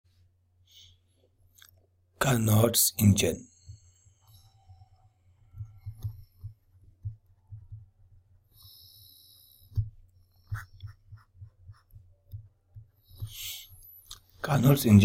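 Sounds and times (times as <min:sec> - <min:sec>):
in-breath: 0:00.6 - 0:01.3, 0:08.4 - 0:10.8, 0:13.0 - 0:13.9
pen writing strokes: 0:09.7 - 0:13.4.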